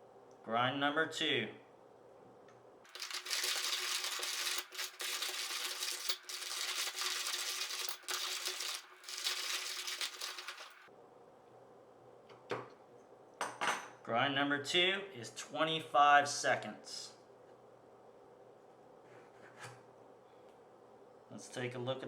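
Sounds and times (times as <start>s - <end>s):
hand coffee grinder crunching beans: 2.9s - 10.9s.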